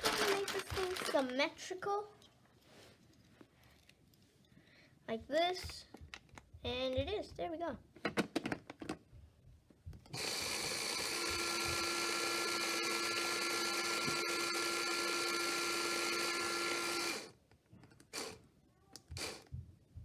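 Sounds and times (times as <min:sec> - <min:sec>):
small electric motor whining: 0:10.2 - 0:17.4, 0:18.1 - 0:18.4, 0:19.0 - 0:19.5.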